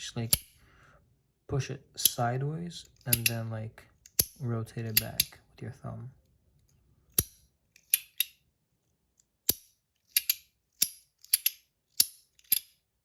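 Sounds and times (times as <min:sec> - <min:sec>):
fidget toy metallic clicks: 0:02.9 - 0:05.4, 0:07.1 - 0:08.4, 0:09.4 - 0:12.8.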